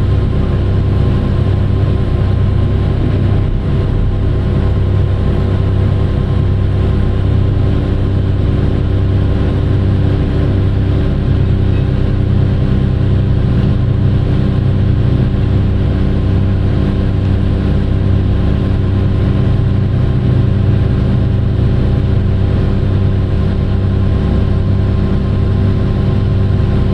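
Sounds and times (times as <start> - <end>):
large diesel engine running: 0.0 - 26.9.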